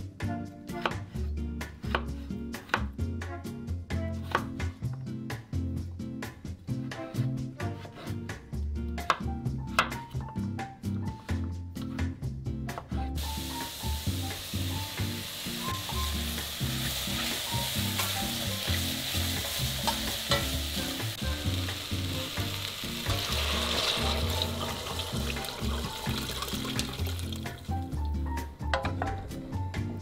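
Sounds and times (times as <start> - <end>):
soft background music: 0.0 - 30.0
broth poured with hiss: 13.2 - 27.7
vegetables sizzling in oil: 13.2 - 28.0.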